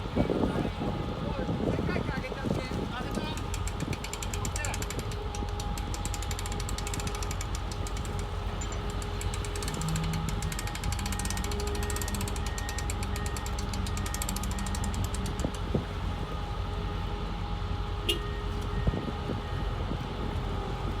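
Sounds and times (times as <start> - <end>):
fast ticking rattle: 3.1 - 15.7
machine humming: 3.4 - 17.5.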